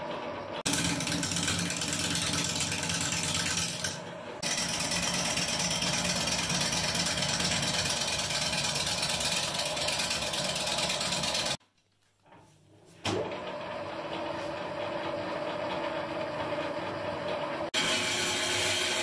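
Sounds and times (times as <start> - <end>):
sawmill machinery noise: 0.0 - 11.6, 13.2 - 19.0.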